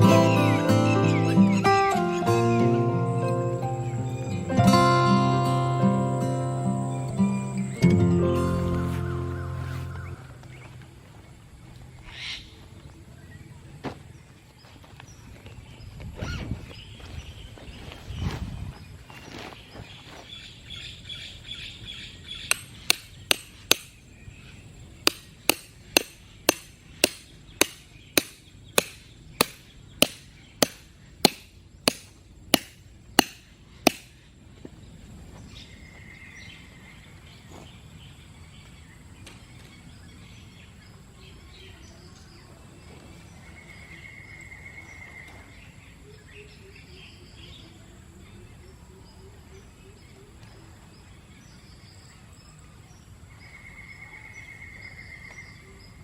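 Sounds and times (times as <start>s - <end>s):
birds chirping: 0.0s - 52.3s
hammer striking tent pegs: 22.5s - 24.0s, 25.1s - 34.1s.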